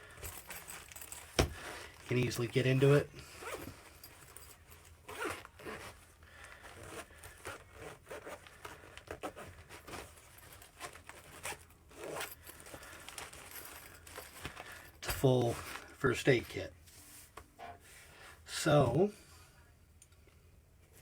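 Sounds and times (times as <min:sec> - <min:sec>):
handling rustle: 0:00.0 - 0:18.0
zipper zipping: 0:03.3 - 0:03.7, 0:05.0 - 0:06.0, 0:06.7 - 0:12.4.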